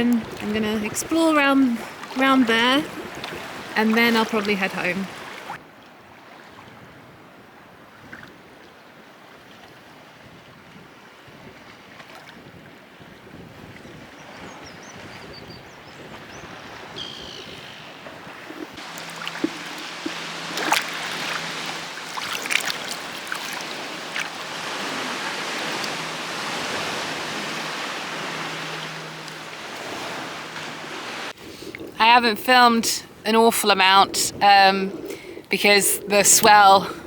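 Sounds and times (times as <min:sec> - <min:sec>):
sharp water splashes: 0:00.0 - 0:05.6, 0:17.6 - 0:32.0
water washing around kayak: 0:00.0 - 0:05.6, 0:18.0 - 0:32.0.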